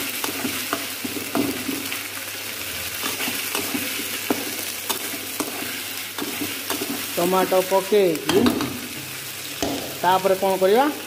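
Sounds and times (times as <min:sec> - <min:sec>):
tomatoes sizzling in hot oil: 0:00.0 - 0:11.0
metal spatula scraping a pan: 0:02.8 - 0:07.5.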